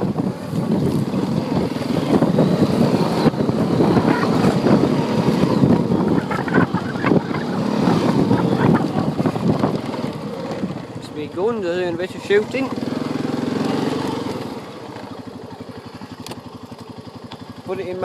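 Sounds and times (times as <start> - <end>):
quad bike engine running: 0.0 - 18.0
rattles and bumps: 5.4 - 11.7.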